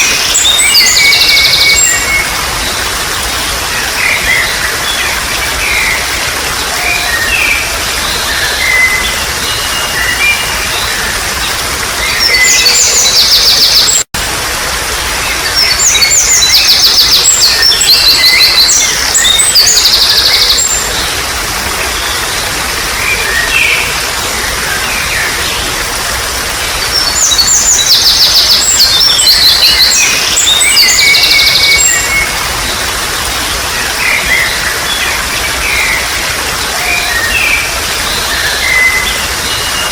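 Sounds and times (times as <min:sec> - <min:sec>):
loud trilled birdsong: 0:00.0 - 0:14.1, 0:15.1 - 0:39.9
water trickling: 0:00.0 - 0:39.9.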